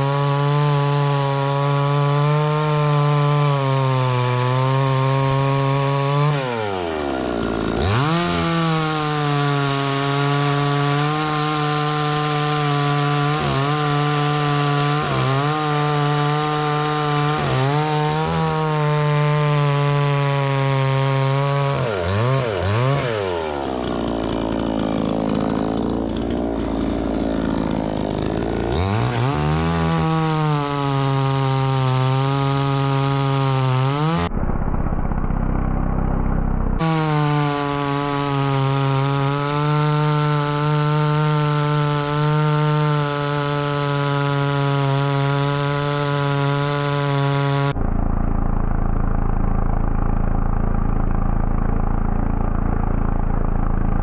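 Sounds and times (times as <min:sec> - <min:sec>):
chainsaw cutting wood: 0:00.0 - 0:35.8, 0:36.8 - 0:54.0.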